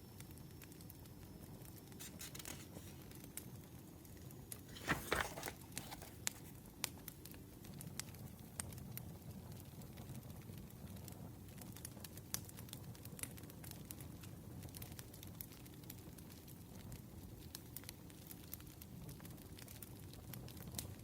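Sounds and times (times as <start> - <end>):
wood fire crackling: 1.6 - 21.0
brief rustle: 2.0 - 3.0, 4.5 - 6.5.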